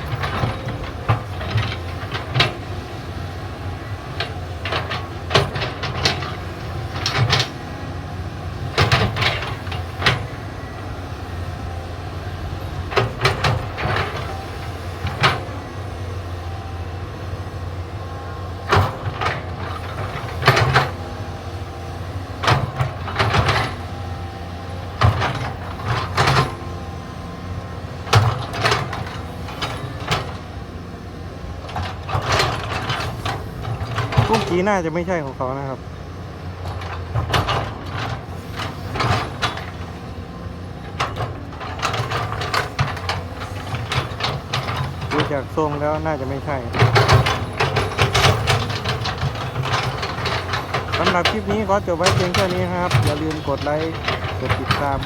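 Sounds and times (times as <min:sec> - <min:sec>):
metallic clanks and knocks: 0:00.0 - 0:03.1, 0:04.0 - 0:07.7, 0:08.6 - 0:10.4, 0:18.5 - 0:27.2, 0:28.0 - 0:30.6, 0:31.6 - 0:34.8, 0:36.6 - 0:55.0
excavator diesel engine running: 0:00.0 - 0:55.0.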